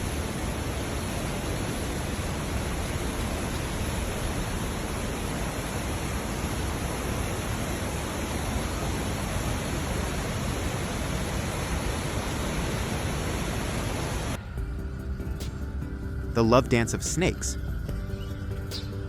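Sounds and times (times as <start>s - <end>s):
fast-flowing water rushing: 0.0s - 14.4s.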